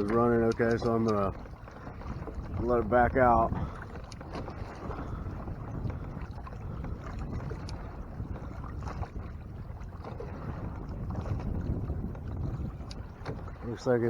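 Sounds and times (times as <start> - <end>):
faint clicks: 0.0 - 1.3, 4.0 - 4.4, 7.6 - 7.8, 12.8 - 13.0
water washing against hull: 0.0 - 14.0
wind rumble on microphone: 0.0 - 14.0.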